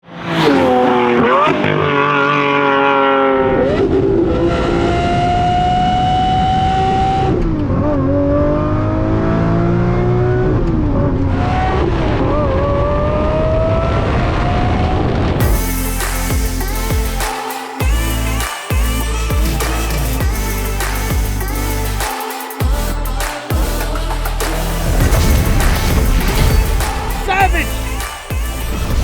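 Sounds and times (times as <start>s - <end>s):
car engine accelerating hard: 0.0s - 16.9s.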